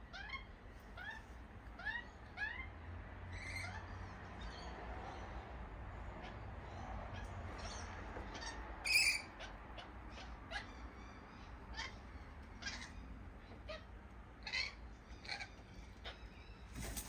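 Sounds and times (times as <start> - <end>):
birds calling: 6.2 - 17.0.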